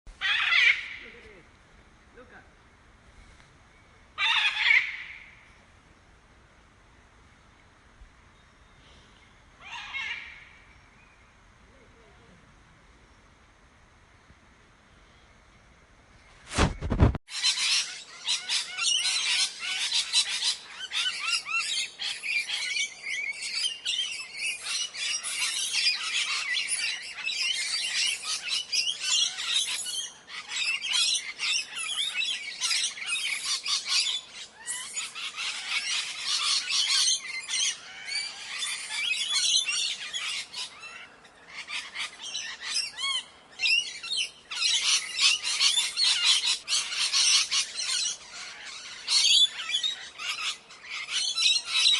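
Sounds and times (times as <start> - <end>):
parrots calling and chirping: 0.1 - 1.3, 4.2 - 5.4, 9.6 - 10.6, 16.8 - 51.9.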